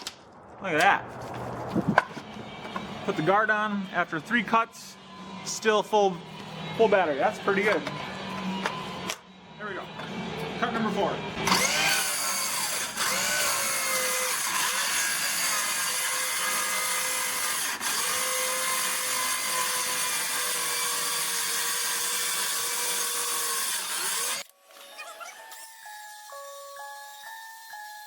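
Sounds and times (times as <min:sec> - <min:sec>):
circular saw cutting board: 0:11.4 - 0:28.0.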